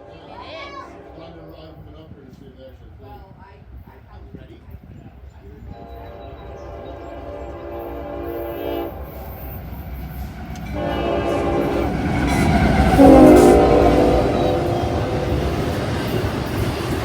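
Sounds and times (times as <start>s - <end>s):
train rumble: 0.0s - 17.0s
locomotive air horn blasts: 5.7s - 9.4s, 10.7s - 16.6s.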